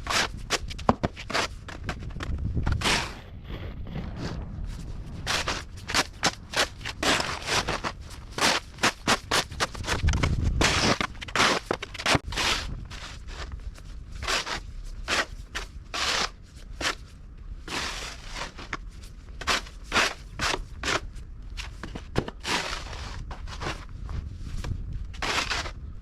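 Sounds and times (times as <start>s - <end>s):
footsteps crunching in snow: 3.9s - 17.1s.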